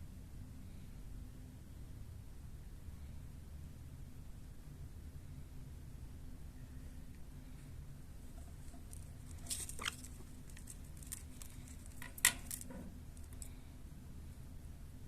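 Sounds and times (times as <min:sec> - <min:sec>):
light clicks and scratches: 0:08.2 - 0:13.6.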